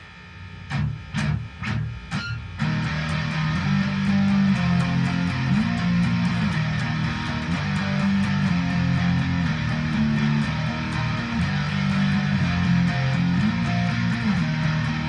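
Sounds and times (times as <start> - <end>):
guitar strummed chords: 0.7 - 15.0.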